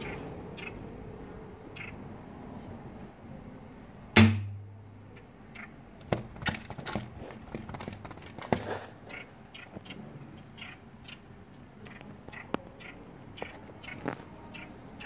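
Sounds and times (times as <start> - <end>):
bird tapping window pane: 6.0 - 8.8
bird thunking against window: 6.0 - 8.8.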